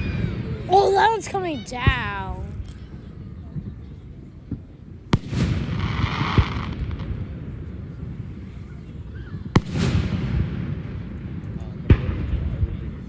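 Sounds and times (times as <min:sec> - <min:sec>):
fireworks bangs: 0:05.2 - 0:08.5.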